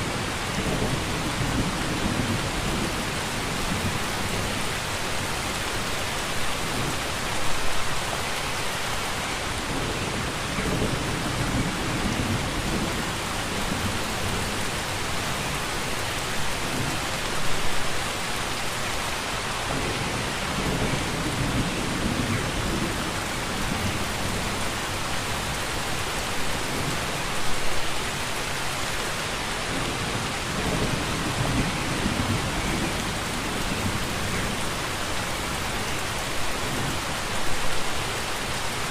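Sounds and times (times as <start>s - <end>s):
heavy rain falling: 0.0s - 38.9s
distant thunder rumbling: 19.7s - 24.6s, 29.7s - 35.6s.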